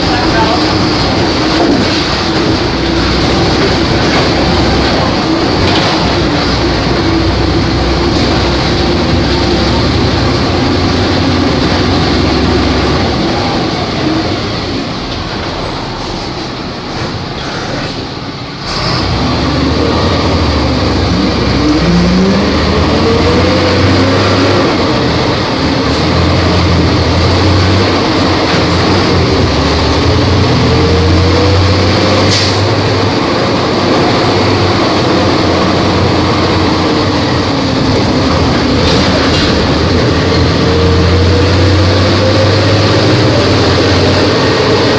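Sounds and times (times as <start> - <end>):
bus diesel engine running: 0.0 - 44.9.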